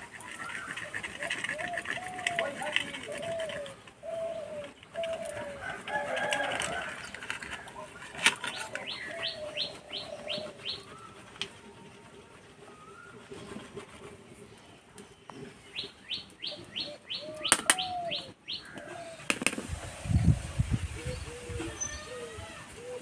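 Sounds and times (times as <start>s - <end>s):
lower coo-like notes: 0.0s - 14.5s, 16.5s - 23.0s
bird calling falling notes: 15.8s - 19.8s
sharp clicks: 17.4s - 17.9s.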